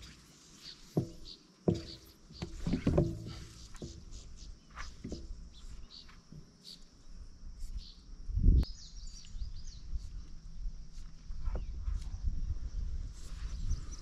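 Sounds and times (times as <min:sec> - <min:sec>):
small birds chirping: 0:00.0 - 0:14.0
dull thump: 0:01.0 - 0:05.7.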